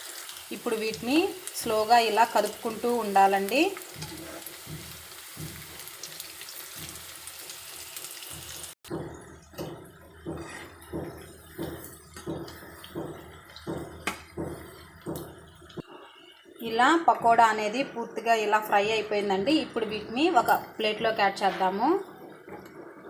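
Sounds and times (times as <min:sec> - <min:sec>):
oil sizzling while deep-frying: 0:00.0 - 0:17.8
spoon stirring in a pan: 0:00.1 - 0:16.6.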